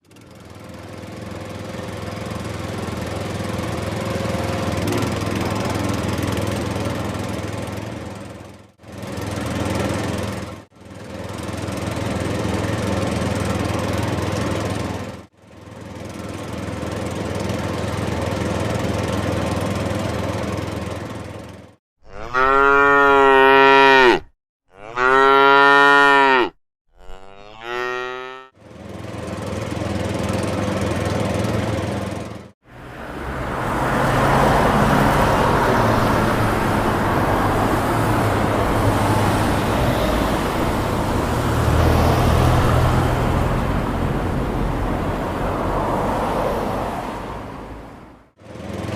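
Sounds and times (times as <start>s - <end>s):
engine running: 0.0s - 24.0s, 27.0s - 48.9s
cow mooing: 22.0s - 28.5s.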